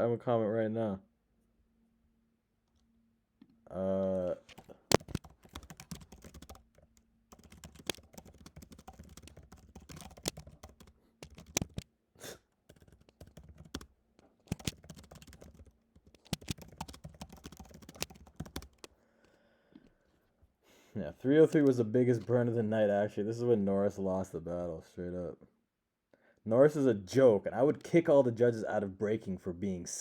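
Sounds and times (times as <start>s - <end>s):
computer keyboard typing: 4.5s - 11.8s, 12.7s - 13.9s, 14.5s - 18.9s.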